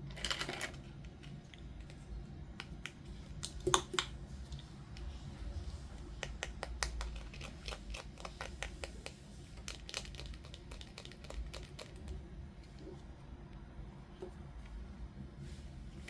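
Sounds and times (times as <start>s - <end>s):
clicks and taps: 2.6s - 4.2s, 6.2s - 12.2s.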